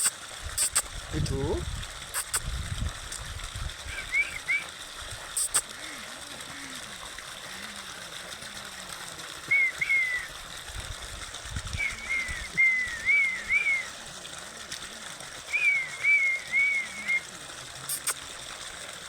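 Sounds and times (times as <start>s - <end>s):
bird whistling: 3.9s - 4.7s, 9.5s - 10.3s, 11.8s - 13.9s, 15.5s - 17.2s.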